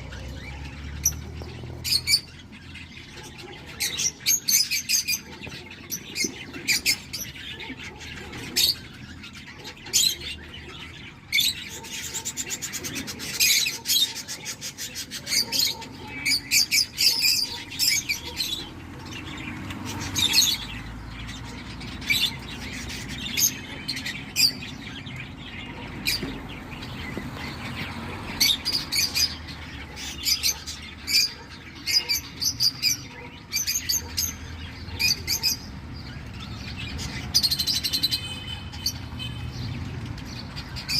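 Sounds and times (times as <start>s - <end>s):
bird chicks chirping: 0.0s - 40.9s.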